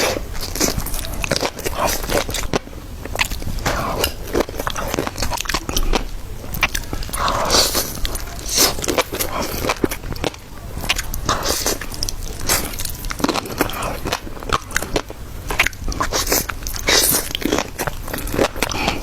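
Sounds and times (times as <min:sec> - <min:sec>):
chewing food: 0:00.0 - 0:19.0.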